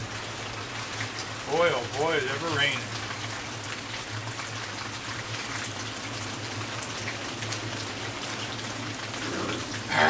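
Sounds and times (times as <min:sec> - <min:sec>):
heavy rain on roof: 0:00.0 - 0:10.0.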